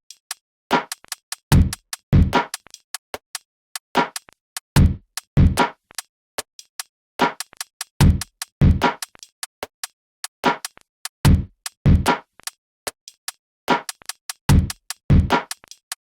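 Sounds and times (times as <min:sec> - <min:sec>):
drum machine beat: 0:00.7 - 0:02.8, 0:04.0 - 0:05.8, 0:07.2 - 0:09.2, 0:10.5 - 0:12.2, 0:13.1 - 0:15.8.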